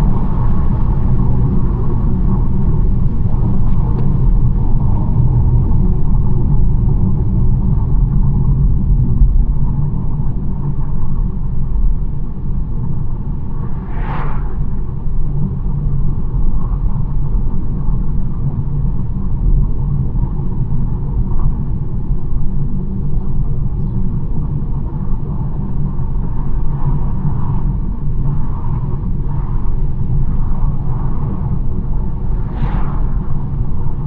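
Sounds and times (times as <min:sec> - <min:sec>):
road and engine rumble: 0:00.0 - 0:26.2, 0:28.8 - 0:34.0
brief rushing sound: 0:13.4 - 0:15.2, 0:32.0 - 0:34.0.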